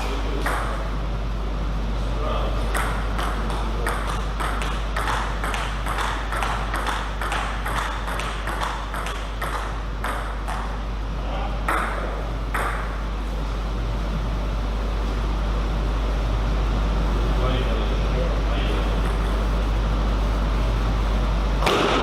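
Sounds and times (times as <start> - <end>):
low electrical hum: 0.0 - 22.0
table tennis ball clicking: 2.8 - 10.7.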